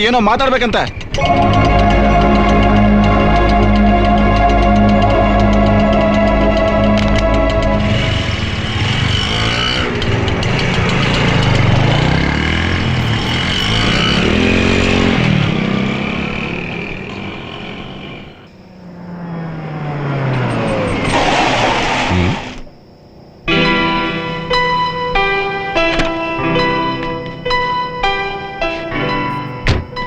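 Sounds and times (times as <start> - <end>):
rushing swell: 1.2 - 25.2
vehicle engines revving and passing: 1.3 - 22.6.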